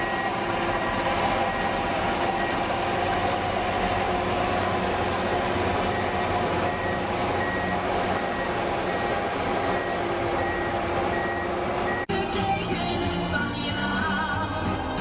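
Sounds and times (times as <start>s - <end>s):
reversing alarm beeping: 0.0s - 2.7s, 3.6s - 4.1s, 5.6s - 12.1s
bulldozer diesel engine running: 0.0s - 12.1s
music: 12.1s - 15.0s.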